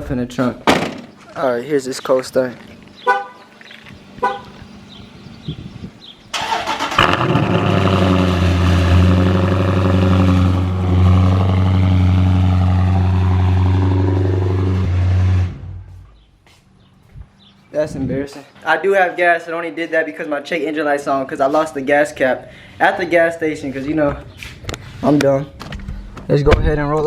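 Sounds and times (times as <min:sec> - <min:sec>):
engine cranking and starting: 0:06.3 - 0:08.8
loud engine idling: 0:07.0 - 0:16.0.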